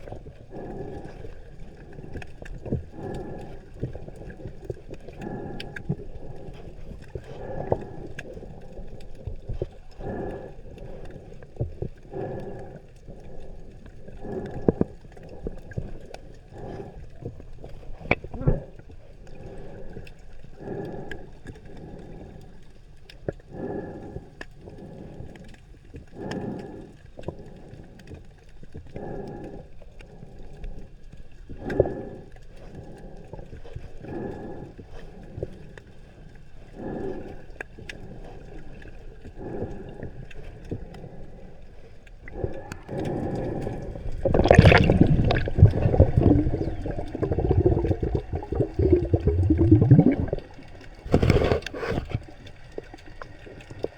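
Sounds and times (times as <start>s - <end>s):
gurgling exhaled bubbles: 0.0s - 21.2s, 36.6s - 53.9s
underwater regulator breathing: 0.0s - 53.9s.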